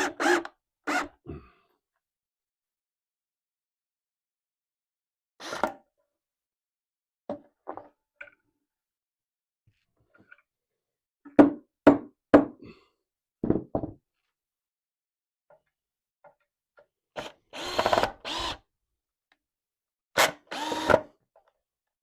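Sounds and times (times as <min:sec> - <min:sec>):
power drill: 0:00.0 - 0:01.1, 0:17.2 - 0:18.6, 0:20.2 - 0:21.1
sharp knocks on wood: 0:13.4 - 0:14.0.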